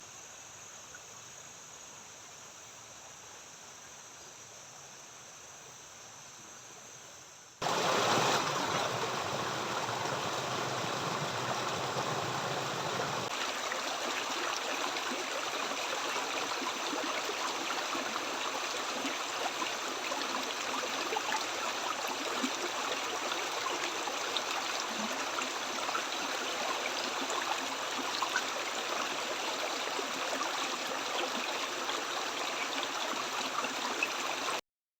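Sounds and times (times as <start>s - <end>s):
river water rushing: 7.6s - 34.1s.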